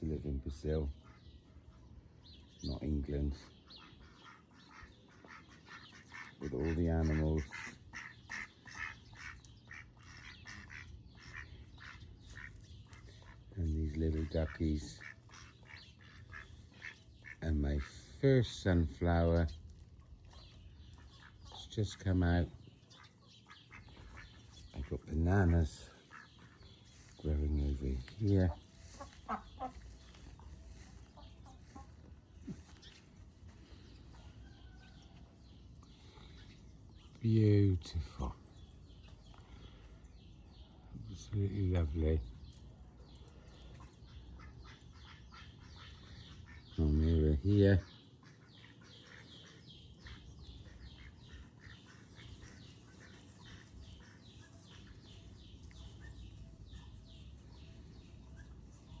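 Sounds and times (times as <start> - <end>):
distant bird chirps: 0.0 - 59.0
fowl clucking and calling: 3.5 - 13.6, 14.3 - 17.4, 28.0 - 36.4, 47.8 - 59.0.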